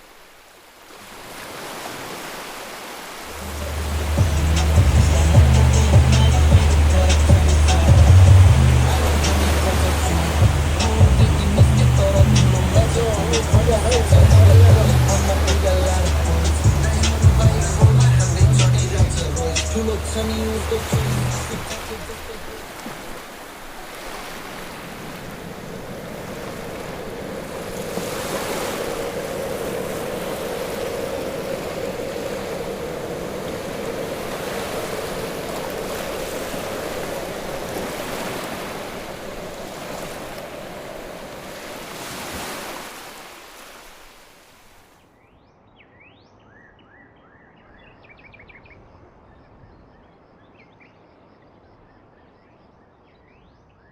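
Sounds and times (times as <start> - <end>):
rushing wind and water: 0.0 - 45.0
steady hum: 3.4 - 22.7
birds chirping: 3.4 - 22.9.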